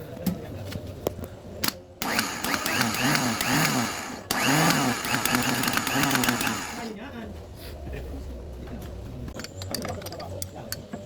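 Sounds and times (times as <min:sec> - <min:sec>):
diesel engine cranking: 0:02.0 - 0:06.9.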